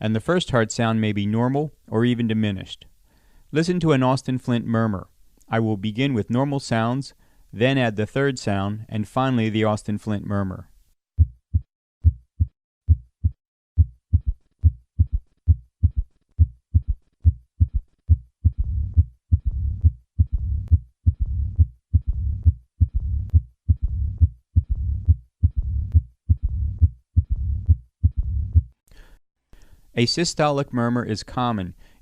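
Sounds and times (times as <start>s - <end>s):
heartbeat through stethoscope: 11.2s - 28.8s
low-pitched heart murmur rumble: 13.8s - 28.7s.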